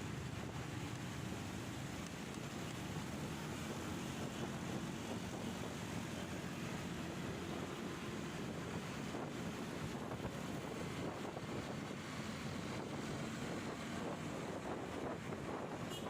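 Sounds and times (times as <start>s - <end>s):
wind rushing over microphone: 7.2s - 15.9s.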